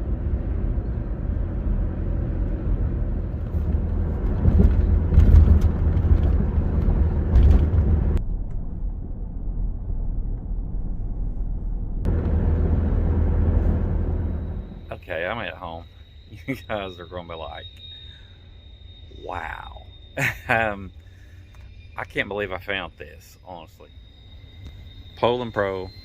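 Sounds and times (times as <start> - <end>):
car cabin road rumble: 0.0 - 17.9.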